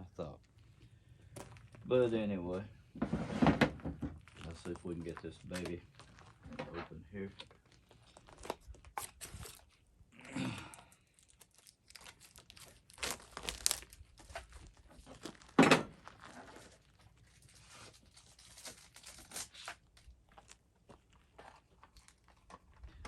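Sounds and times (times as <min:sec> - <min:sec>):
packaging tearing and crinkling: 0:04.2 - 0:06.5, 0:07.2 - 0:09.8, 0:10.8 - 0:20.6, 0:21.5 - 0:22.8.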